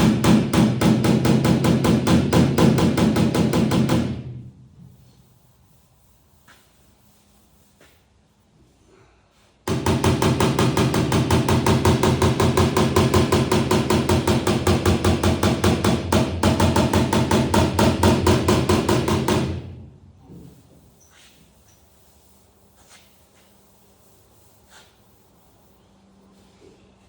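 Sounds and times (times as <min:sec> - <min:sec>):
hammer beating steel panel: 0:00.0 - 0:05.0, 0:09.7 - 0:20.7.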